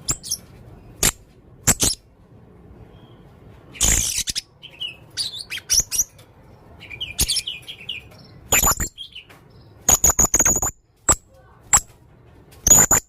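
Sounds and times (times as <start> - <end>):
parrot squeaky calls: 0.0 - 0.4, 3.7 - 6.1, 8.5 - 9.2, 12.7 - 13.0.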